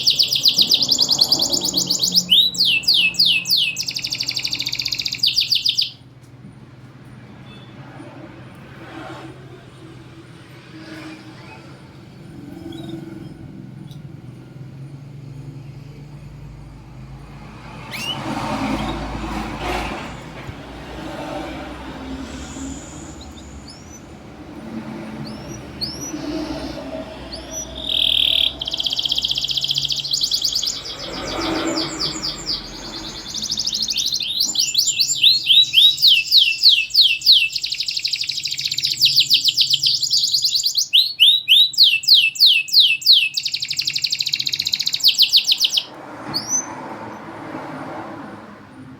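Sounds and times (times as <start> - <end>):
canary singing: 0.0 - 6.1, 15.2 - 46.8.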